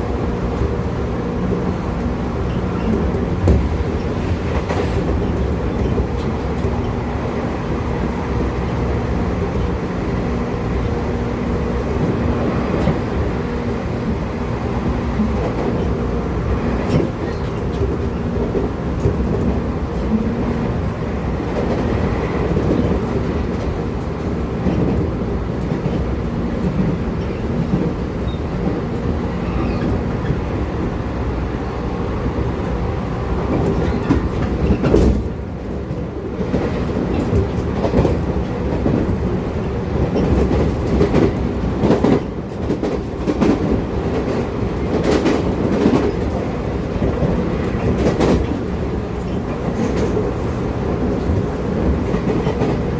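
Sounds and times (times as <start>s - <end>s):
train running rumble: 0.0s - 52.9s
wheels clacking over rail joints: 33.4s - 52.9s.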